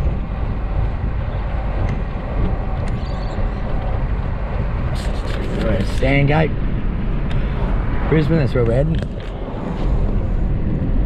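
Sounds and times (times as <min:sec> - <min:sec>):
car cabin road noise: 0:00.0 - 0:11.0.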